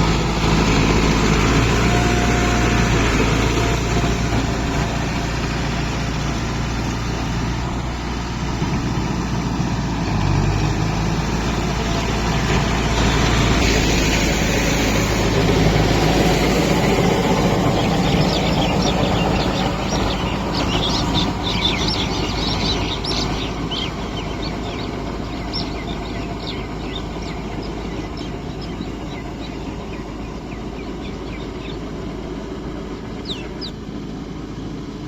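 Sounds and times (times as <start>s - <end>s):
tractor diesel engine running: 0.0s - 35.0s
bird chirps: 15.8s - 32.1s, 33.0s - 33.8s.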